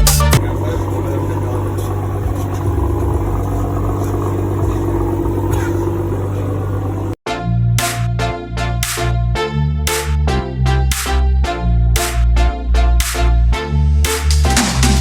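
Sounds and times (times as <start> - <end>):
car engine idling: 0.0 - 7.2.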